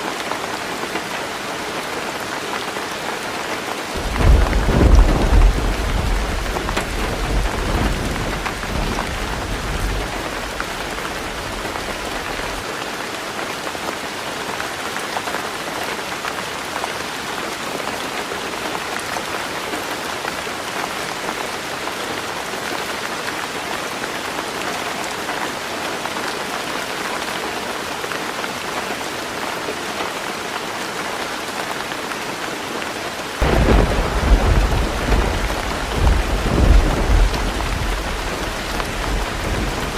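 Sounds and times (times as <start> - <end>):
heavy rain on a tin roof: 0.0 - 39.9
thunder rumble: 4.0 - 12.6, 33.4 - 39.9.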